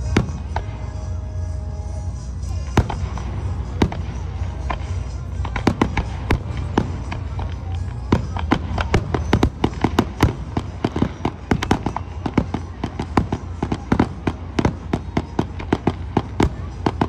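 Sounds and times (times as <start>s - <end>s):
fireworks bangs and cracks: 0.0s - 1.1s, 2.4s - 17.0s
continuous low rumble: 0.0s - 17.0s.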